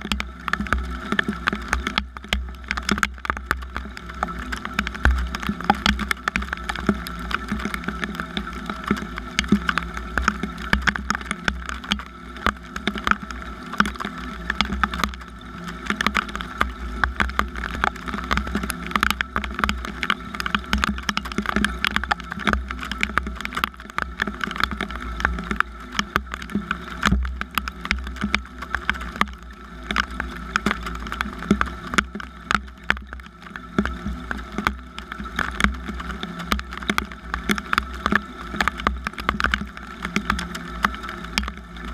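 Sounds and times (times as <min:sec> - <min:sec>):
rain drops spattering: 0:00.0 - 0:41.9.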